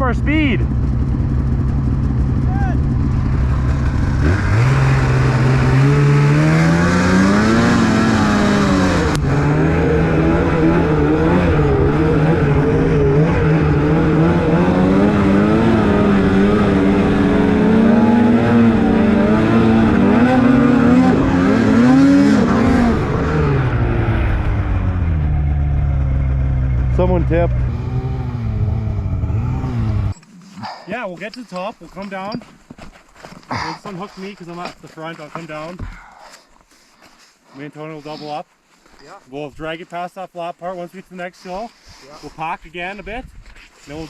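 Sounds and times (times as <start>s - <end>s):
snowmobile engine revving: 0.0s - 31.6s.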